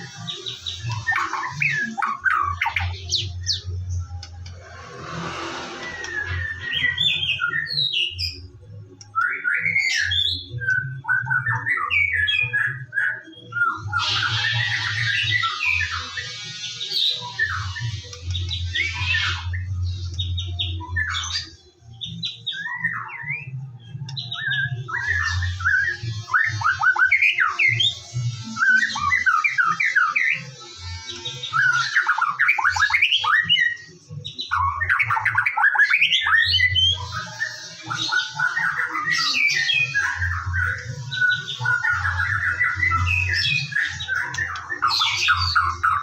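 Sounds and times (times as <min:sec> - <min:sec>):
bird singing whistled notes: 0:04.8 - 0:46.0.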